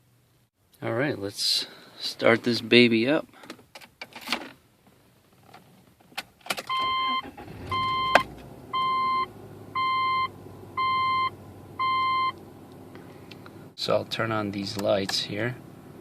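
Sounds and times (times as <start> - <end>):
car engine starting and idling: 6.5 - 16.0
dashboard warning chime beeping: 6.7 - 12.4.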